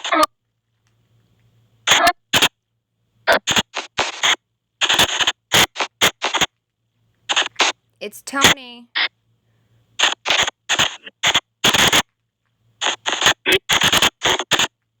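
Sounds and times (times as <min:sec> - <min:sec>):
chopped bursts of noise and garbled audio: 0:01.8 - 0:02.5, 0:03.3 - 0:06.6, 0:07.3 - 0:08.8, 0:10.0 - 0:12.1, 0:12.8 - 0:14.8.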